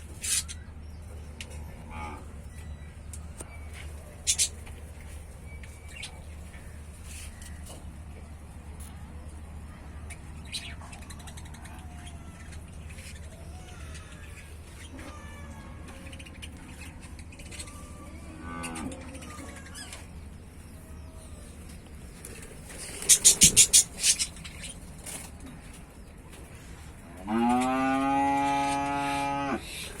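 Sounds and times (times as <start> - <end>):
low steady hum: 0.0 - 30.0
cow mooing: 27.2 - 29.6.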